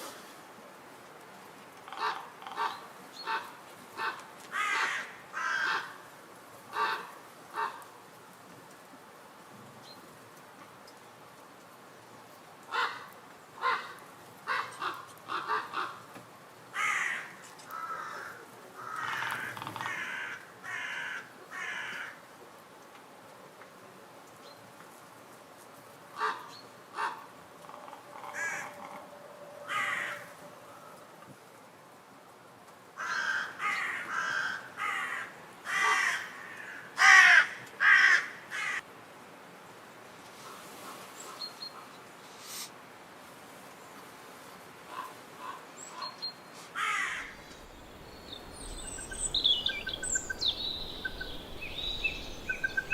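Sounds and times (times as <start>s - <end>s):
bird calling: 47.0s - 52.9s.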